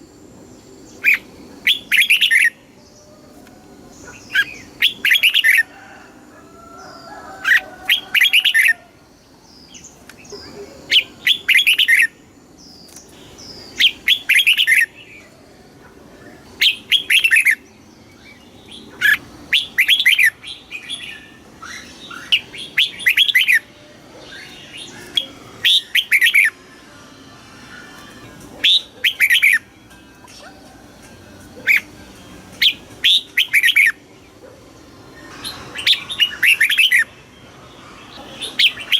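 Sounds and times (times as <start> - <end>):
bird singing whistled phrases: 1.0 - 2.6, 10.9 - 12.2, 19.0 - 23.7.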